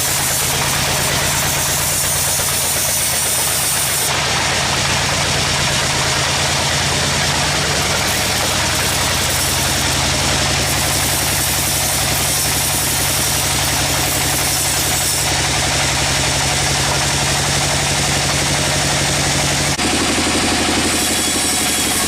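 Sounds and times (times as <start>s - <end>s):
sawmill machinery drone: 0.0s - 22.0s.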